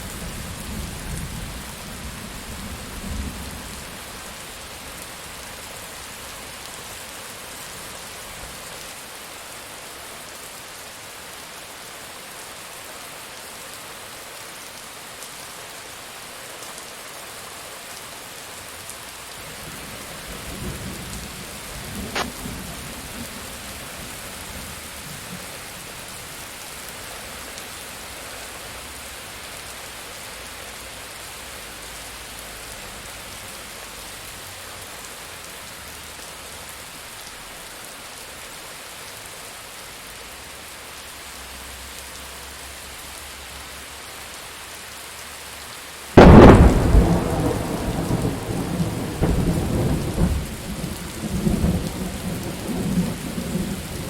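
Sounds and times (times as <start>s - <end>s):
rain falling: 0.0s - 54.0s
thunderclap and rumble: 46.2s - 54.0s.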